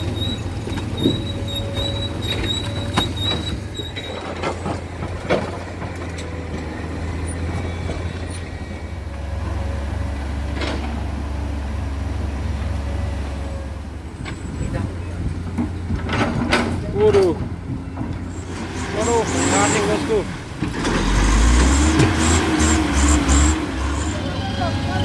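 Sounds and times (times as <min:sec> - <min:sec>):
diesel machinery droning: 0:00.0 - 0:25.0
metallic clanks and knocks: 0:14.2 - 0:18.3.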